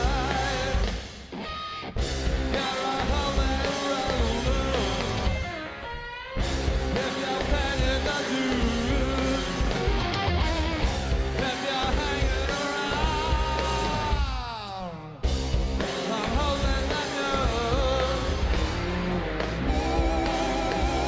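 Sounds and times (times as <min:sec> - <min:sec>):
live hard rock band: 0:00.0 - 0:21.0
person singing: 0:19.7 - 0:21.0.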